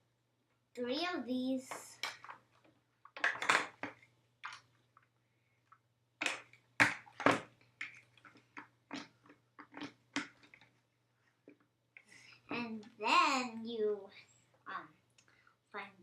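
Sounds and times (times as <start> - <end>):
plastic pieces clicking: 1.7 - 5.1.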